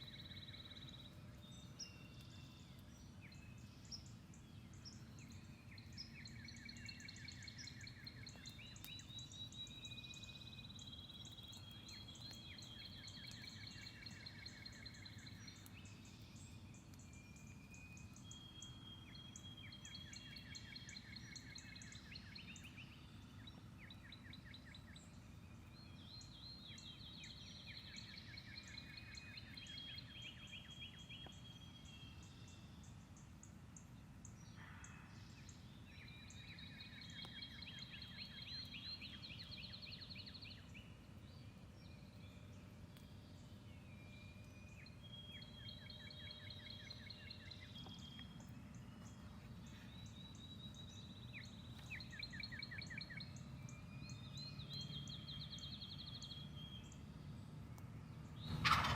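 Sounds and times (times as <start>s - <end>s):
songbirds singing: 0.0s - 58.9s.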